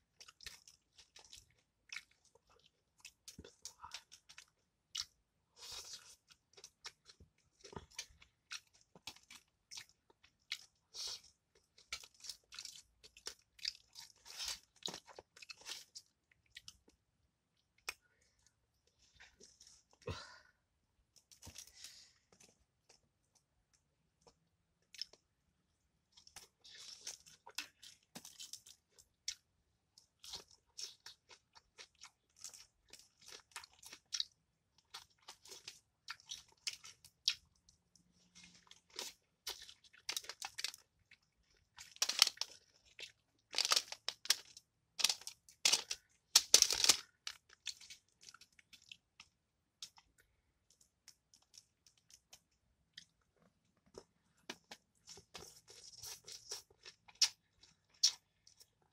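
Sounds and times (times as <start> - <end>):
crunching fried fish: 38.4 - 48.9.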